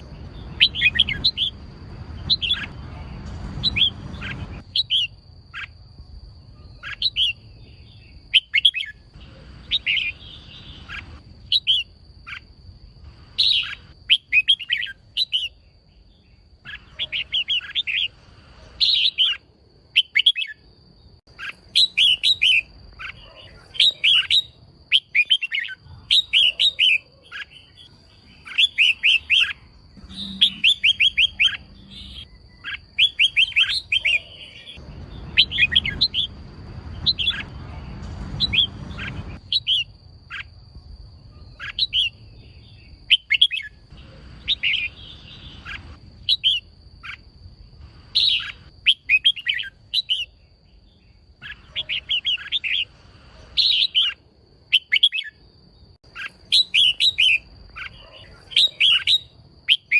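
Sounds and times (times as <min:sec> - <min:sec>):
bulbul chirping: 0:21.3 - 0:36.4.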